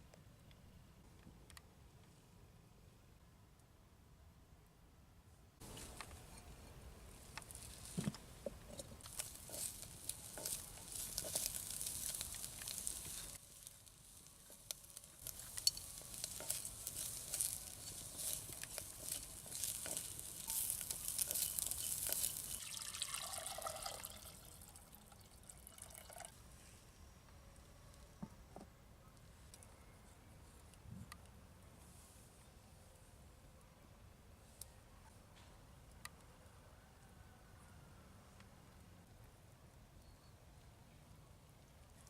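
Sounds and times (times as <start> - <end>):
food sizzling and crackling on fire: 8.8 - 24.6.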